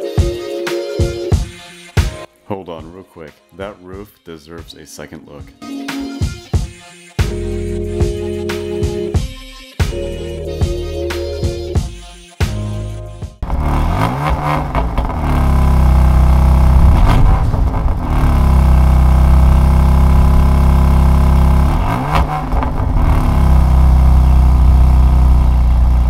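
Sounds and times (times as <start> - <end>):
car engine revving and idling: 13.4 - 26.0.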